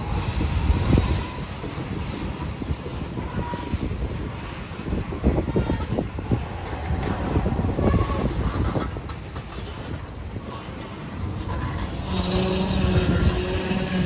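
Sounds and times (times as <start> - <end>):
train rumbling past: 0.0 - 14.0
wheels knocking over rail joints: 4.2 - 14.0
thin wheel squeals: 4.9 - 8.8, 10.7 - 14.0.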